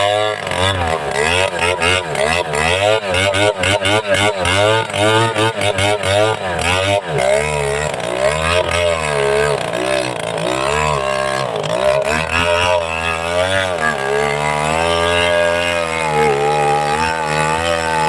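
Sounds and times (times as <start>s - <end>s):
chainsaw engine running hard: 0.0s - 18.0s.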